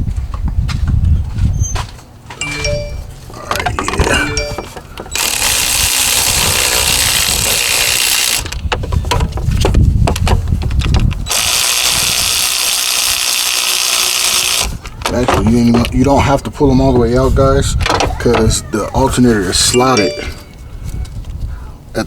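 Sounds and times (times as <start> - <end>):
power tool running: 5.2 - 8.5, 11.3 - 14.8.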